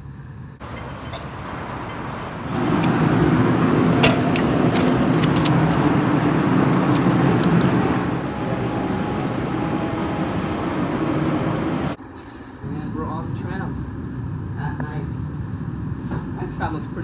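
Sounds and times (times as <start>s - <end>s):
rumbling vehicle noise: 0.0s - 17.0s.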